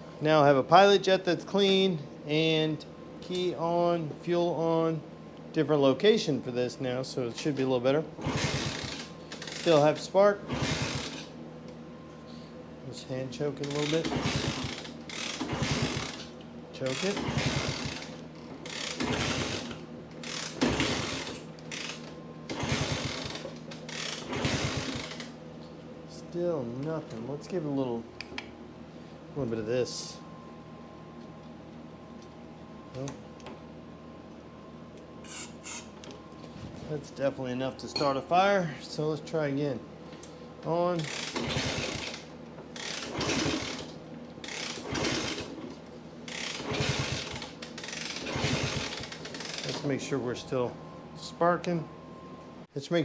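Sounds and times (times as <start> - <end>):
motorcycle engine kick-start clatter: 8.2 - 11.3, 13.7 - 16.3, 16.9 - 25.4, 41.0 - 45.7, 46.3 - 50.0.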